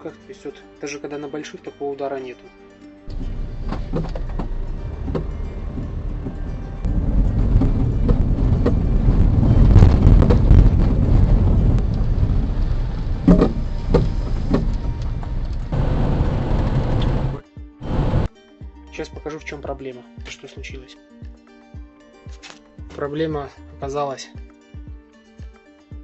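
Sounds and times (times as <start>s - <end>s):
car road noise: 3.1s - 18.3s.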